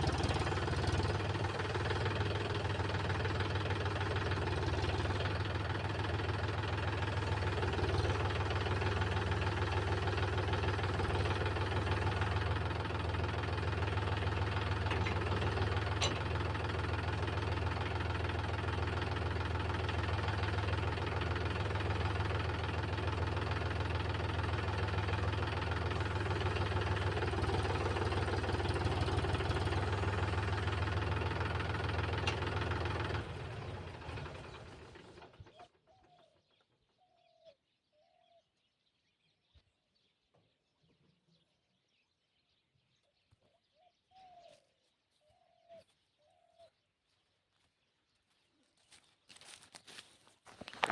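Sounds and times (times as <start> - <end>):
tractor diesel engine knocking: 0.0 - 35.6.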